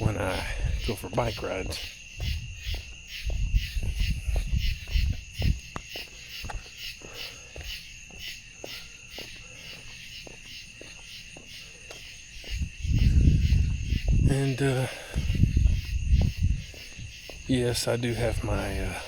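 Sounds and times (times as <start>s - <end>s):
crickets chirping: 0.0s - 19.0s
low rumble: 12.6s - 14.4s, 15.2s - 16.7s.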